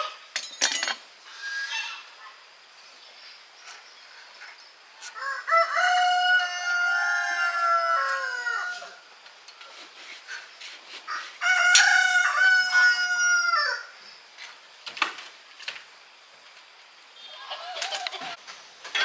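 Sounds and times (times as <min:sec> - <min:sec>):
rooster crowing: 0:05.0 - 0:09.1, 0:11.1 - 0:14.0.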